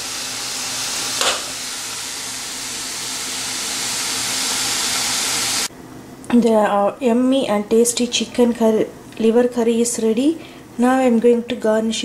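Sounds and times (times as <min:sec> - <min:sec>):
curry sizzling in a pan: 0:00.0 - 0:05.7.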